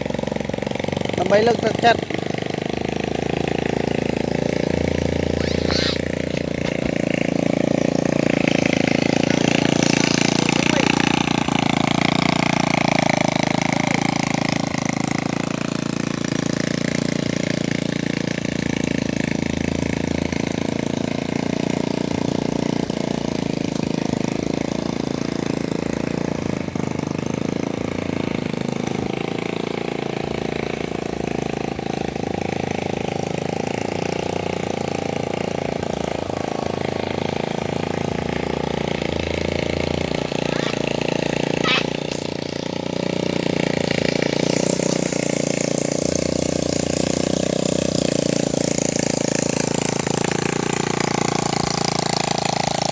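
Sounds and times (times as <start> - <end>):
vehicle engine running: 0.0 - 52.9.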